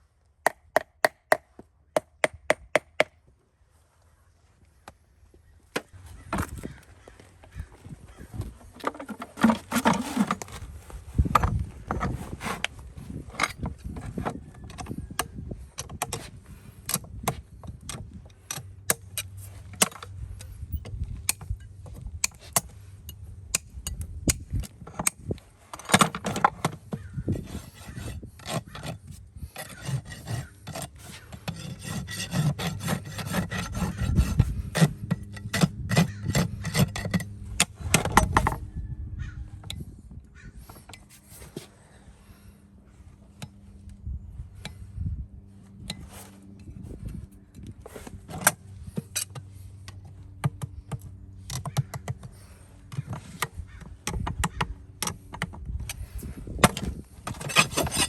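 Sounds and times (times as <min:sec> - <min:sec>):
rasp filing a hoof: 0:07.5 - 0:15.4, 0:24.3 - 0:38.7, 0:51.6 - 0:58.0.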